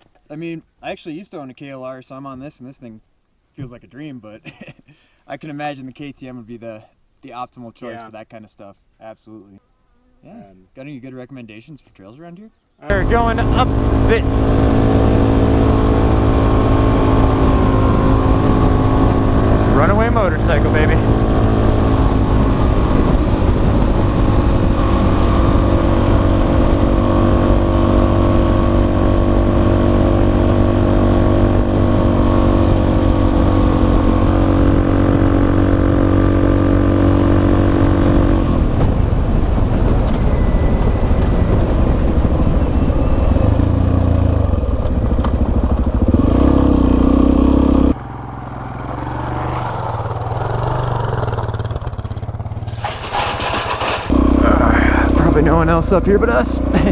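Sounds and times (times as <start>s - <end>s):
motorcycle engine riding uphill: 12.9s - 56.9s.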